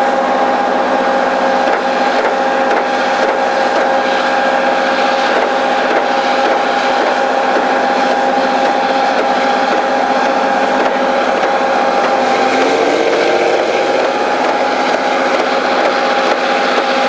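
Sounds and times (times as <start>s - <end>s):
held machinery tones: 0.0s - 17.0s
train rushing past: 9.6s - 16.3s
pitch-bending tone: 10.0s - 15.8s.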